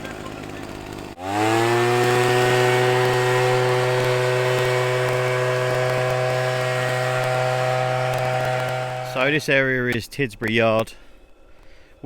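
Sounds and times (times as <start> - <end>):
leaf blower running: 0.0 - 9.5.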